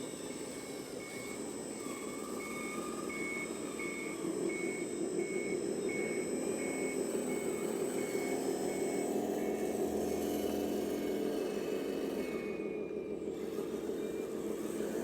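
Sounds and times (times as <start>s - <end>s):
reversing beeper: 0.0s - 10.4s
model truck drive running: 0.0s - 15.0s.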